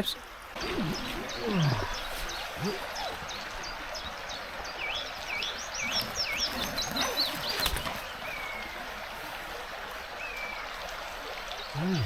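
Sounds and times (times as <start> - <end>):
river rushing: 0.2 - 12.0
small birds whistling: 0.6 - 8.8.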